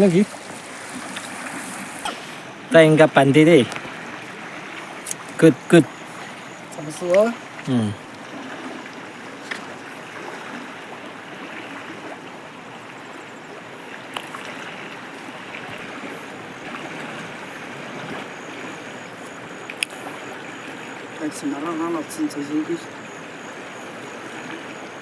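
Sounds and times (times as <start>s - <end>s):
stream rushing: 0.0s - 25.0s
faint clicks: 19.6s - 20.0s.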